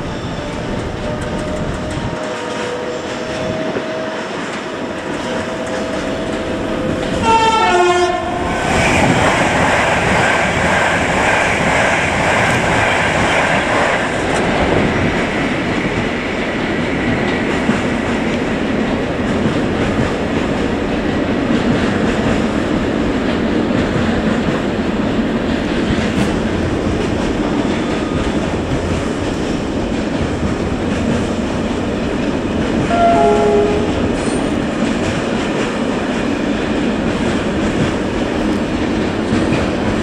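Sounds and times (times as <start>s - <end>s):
train horn: 0.0s - 8.5s, 32.8s - 34.4s
train wheels on rails: 0.0s - 40.0s.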